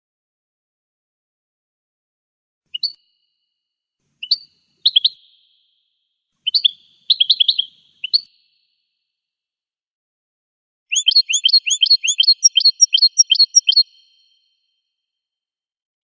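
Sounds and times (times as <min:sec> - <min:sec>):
goldfinch chirping: 0:04.2 - 0:05.7, 0:06.4 - 0:08.5, 0:10.9 - 0:14.3.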